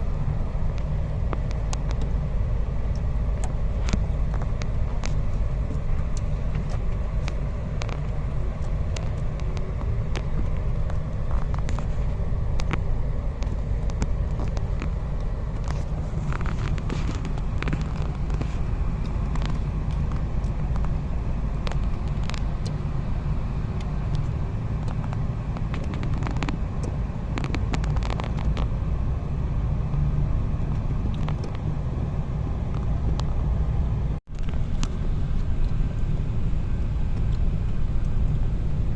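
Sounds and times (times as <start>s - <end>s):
car engine and road noise: 0.0s - 38.9s
small clicks and rattles: 0.7s - 28.8s.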